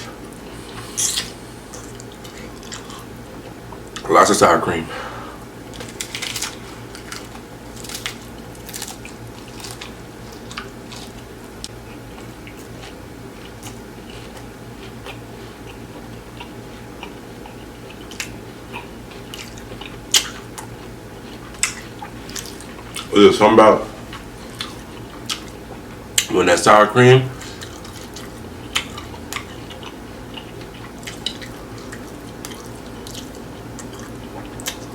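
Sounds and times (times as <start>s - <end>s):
crunchy taco shell chewing: 5.7s - 23.1s, 27.4s - 34.9s.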